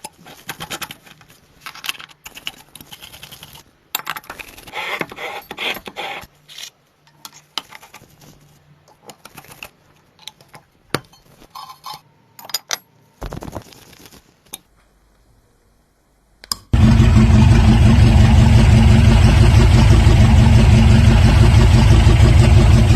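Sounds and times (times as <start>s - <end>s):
small metal parts clattering: 0.0s - 4.7s, 6.5s - 14.6s
model engine running: 16.8s - 22.9s.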